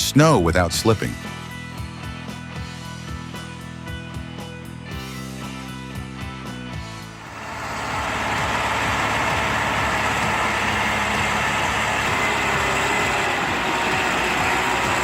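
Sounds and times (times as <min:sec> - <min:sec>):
heavy vehicle engine running: 0:06.6 - 0:15.0.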